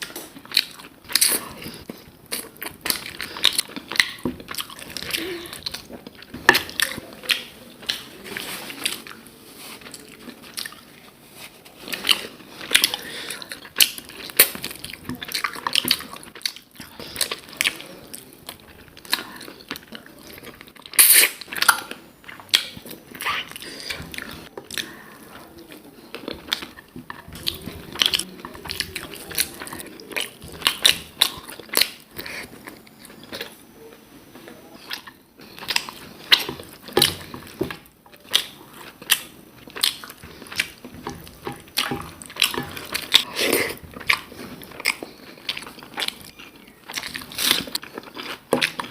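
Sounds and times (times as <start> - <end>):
person chewing and biting: 0.0 - 9.2, 25.7 - 33.6, 34.8 - 48.9.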